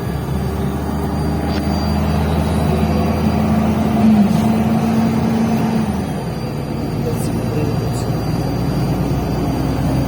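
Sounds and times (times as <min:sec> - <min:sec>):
bus engine hum: 0:00.0 - 0:10.0.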